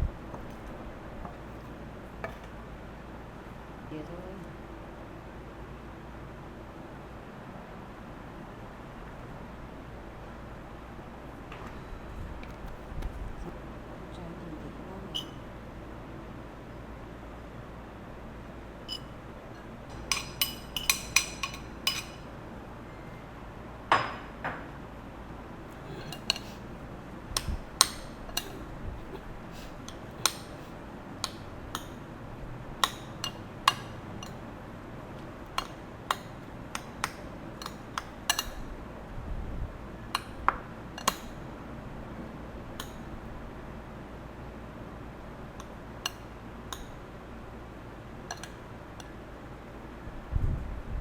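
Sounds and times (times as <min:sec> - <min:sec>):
utensils clinking on dishes: 0:18.9 - 0:22.3, 0:25.7 - 0:26.7, 0:27.4 - 0:32.0, 0:32.8 - 0:34.4, 0:35.5 - 0:38.6, 0:48.2 - 0:48.6.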